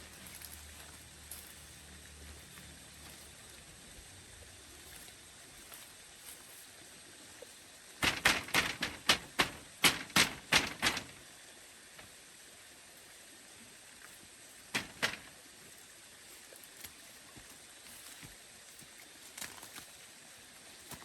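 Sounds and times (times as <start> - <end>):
faint steady hiss: 0.0 - 21.0
sharp knocks: 8.0 - 11.2, 14.7 - 15.4.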